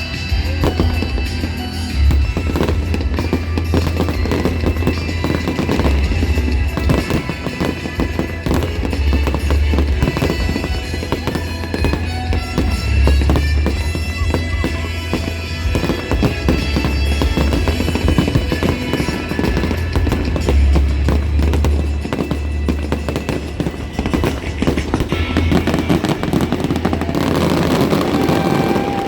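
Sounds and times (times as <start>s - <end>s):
fireworks bangs and crackling: 0.0s - 29.0s
loud music: 0.0s - 29.0s.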